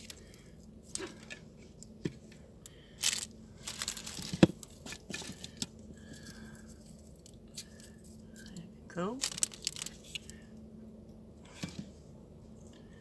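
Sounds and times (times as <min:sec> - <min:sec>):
craft materials rustling: 0:03.0 - 0:05.6.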